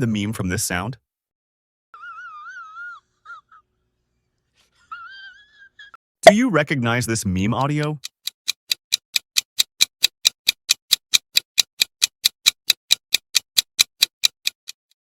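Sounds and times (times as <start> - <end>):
clock ticking: 7.4 - 15.0.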